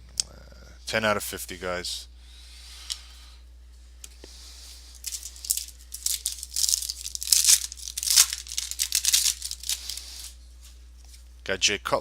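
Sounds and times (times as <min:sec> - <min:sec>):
wrapper being torn open: 0:05.0 - 0:10.4.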